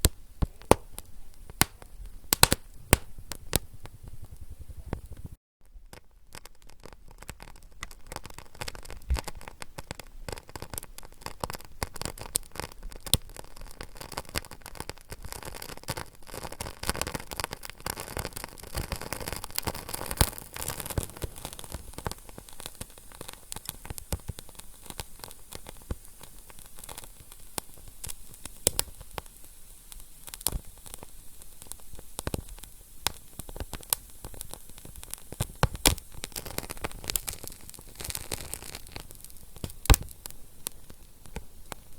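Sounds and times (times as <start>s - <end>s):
wood fire crackling: 0.0s - 41.9s
soft hiss: 17.7s - 41.9s.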